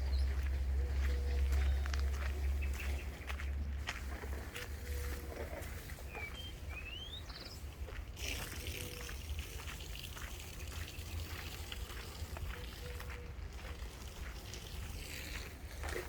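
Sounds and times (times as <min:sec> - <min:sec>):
bird chirping: 0:00.0 - 0:03.6, 0:06.0 - 0:07.8
footsteps on a path: 0:00.0 - 0:16.0.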